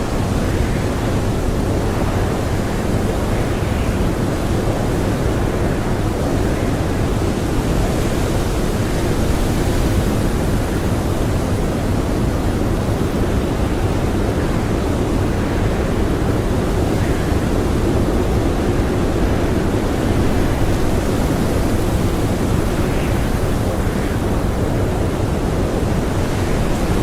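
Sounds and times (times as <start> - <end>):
blizzard wind blowing hard: 0.0 - 27.0.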